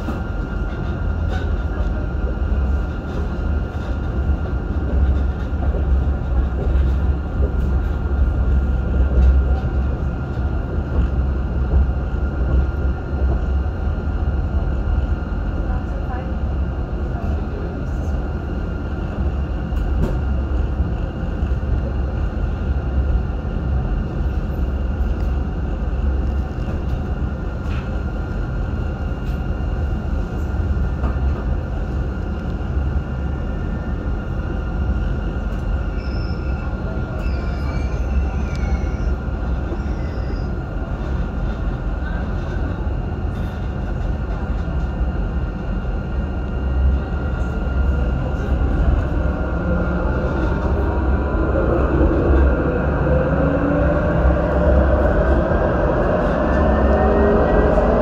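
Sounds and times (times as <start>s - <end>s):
train rumble and rail noise: 0.0s - 58.0s
rising whine: 48.8s - 58.0s.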